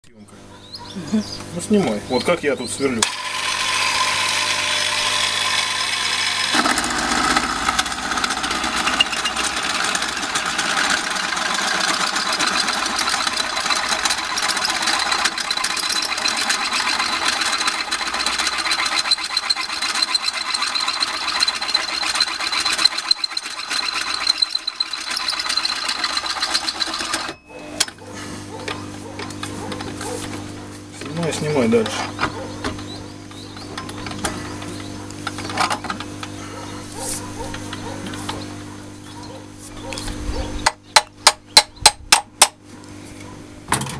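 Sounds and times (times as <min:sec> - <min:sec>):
electric drill whining: 0:03.0 - 0:27.4
drill cutting noise: 0:03.0 - 0:27.8.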